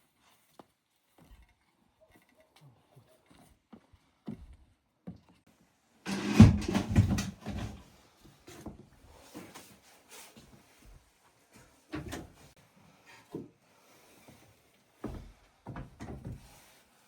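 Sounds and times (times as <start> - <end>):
objects knocking and clattering: 6.1 - 7.8.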